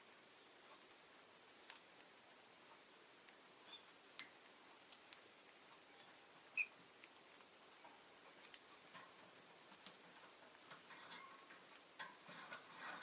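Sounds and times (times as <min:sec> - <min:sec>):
faint clicks: 0:01.6 - 0:03.4, 0:04.1 - 0:06.2, 0:07.0 - 0:12.6.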